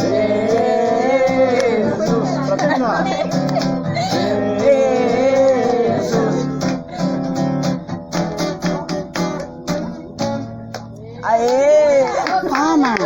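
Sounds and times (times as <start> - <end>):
person singing: 0.0 - 7.2
acoustic guitar strumming: 0.0 - 11.2.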